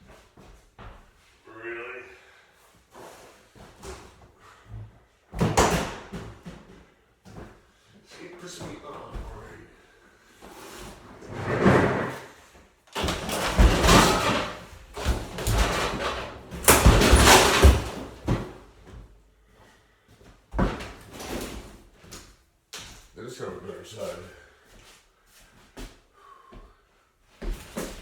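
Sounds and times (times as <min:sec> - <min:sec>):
metal and plastic crashing: 0:13.0 - 0:18.6.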